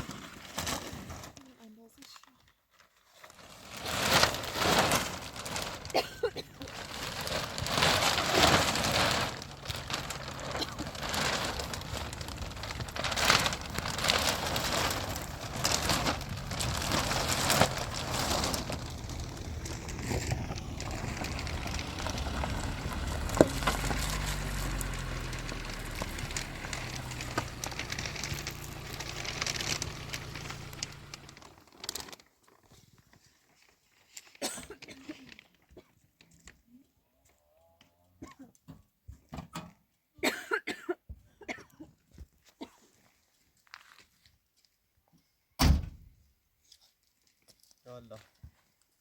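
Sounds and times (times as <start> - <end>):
rain falling: 6.6 - 31.5.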